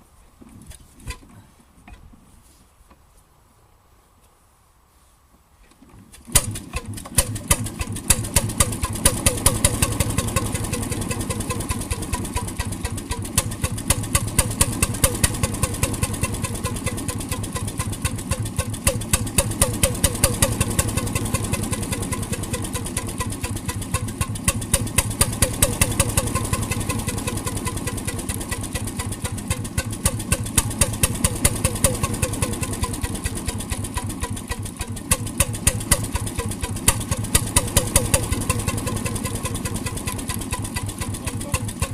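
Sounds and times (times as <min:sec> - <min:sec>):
marine engine knocking: 0:07.5 - 0:41.9.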